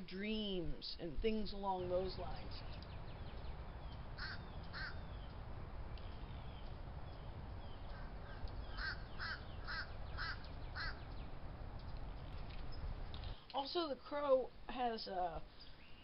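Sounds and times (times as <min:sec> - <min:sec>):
steady low rumble: 0:00.6 - 0:13.4
bird calling: 0:02.4 - 0:11.4.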